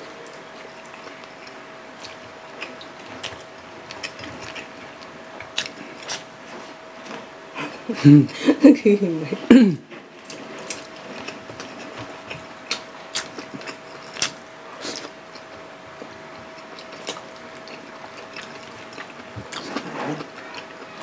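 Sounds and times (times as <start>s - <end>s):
faint steady hum: 0.0s - 21.0s
wet chewing and lip smacks: 5.4s - 6.3s, 10.2s - 15.5s.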